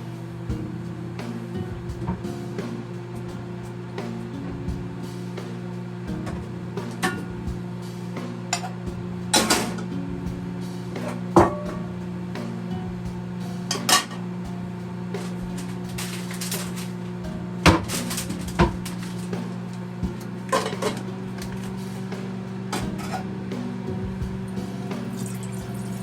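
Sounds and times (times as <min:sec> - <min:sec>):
dishes and utensils clinking: 0:13.6 - 0:14.3, 0:15.2 - 0:19.6, 0:20.5 - 0:21.8, 0:24.8 - 0:26.0.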